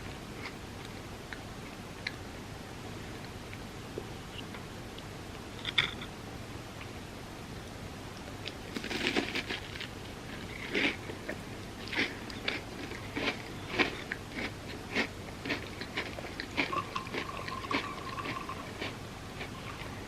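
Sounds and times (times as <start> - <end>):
person chewing crunchy food: 8.4 - 20.0.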